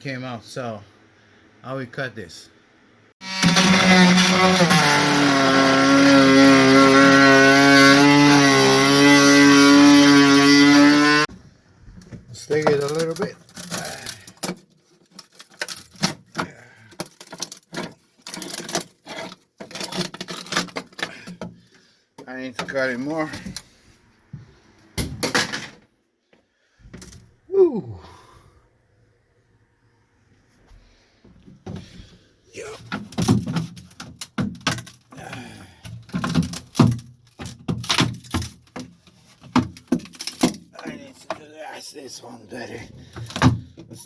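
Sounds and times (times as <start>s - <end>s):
power tool cutting fibreglass: 3.2s - 11.3s.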